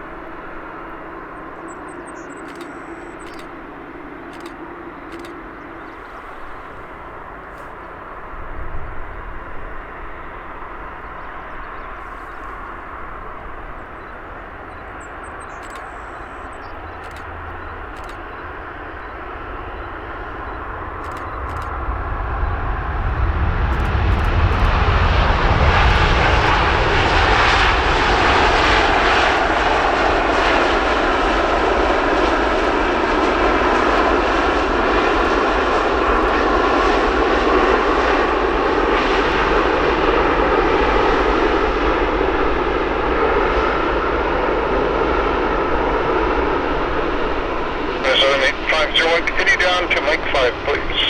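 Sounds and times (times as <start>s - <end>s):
airliner engines rumbling: 0.0s - 51.0s.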